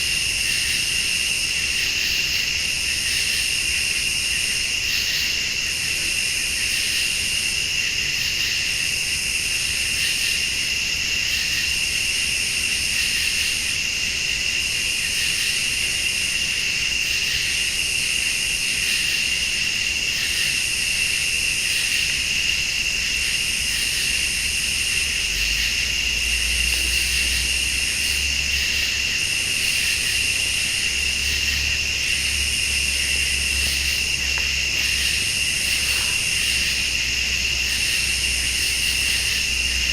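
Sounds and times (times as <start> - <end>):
crickets trilling: 0.0 - 39.9
high-pitched insect pulsing: 21.6 - 39.9.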